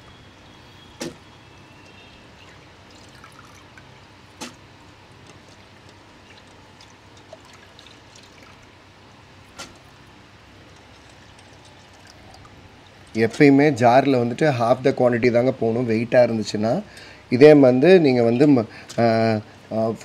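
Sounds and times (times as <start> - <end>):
sharp knocks: 1.0 - 1.2
rice and water pouring into jar: 2.5 - 3.8.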